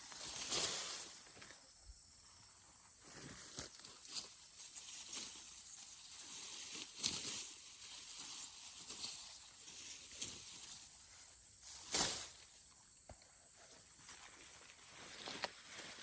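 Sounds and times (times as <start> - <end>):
grass rustling and swishing: 0.0 - 1.6, 2.4 - 12.6.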